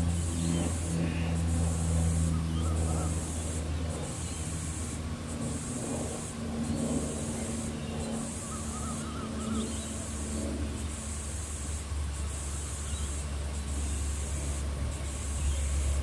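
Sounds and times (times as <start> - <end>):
hissing insect chorus: 0.0 - 16.0
faint bird chirps: 6.7 - 11.0.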